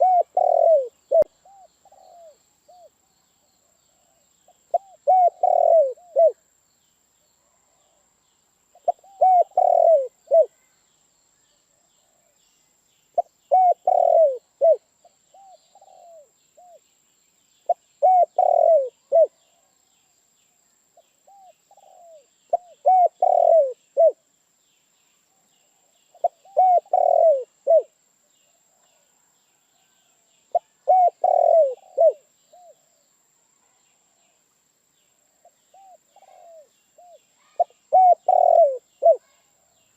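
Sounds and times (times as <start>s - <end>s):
dove cooing: 0.0s - 2.9s, 4.0s - 6.4s, 8.8s - 10.5s, 13.2s - 16.8s, 17.7s - 19.3s, 21.3s - 24.2s, 26.2s - 27.9s, 30.5s - 32.8s, 35.7s - 39.3s.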